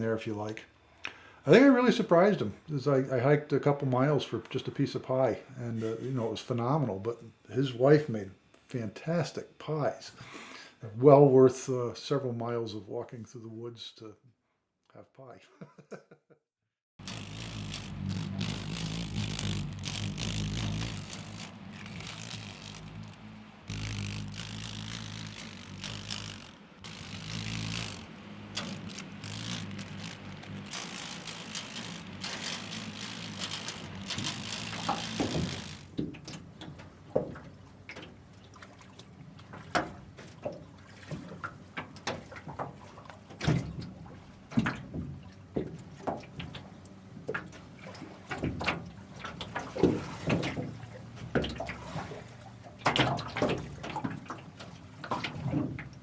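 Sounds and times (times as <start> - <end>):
running water rushing: 17.0 - 36.0
water drips and splashes: 23.8 - 56.0.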